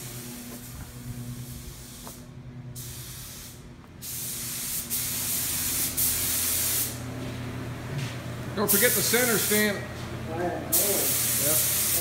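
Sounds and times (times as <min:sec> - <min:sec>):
paint spray gun hissing: 0:00.0 - 0:02.2, 0:02.8 - 0:07.0, 0:08.7 - 0:09.8, 0:10.7 - 0:12.0
steady low hum: 0:00.0 - 0:12.0.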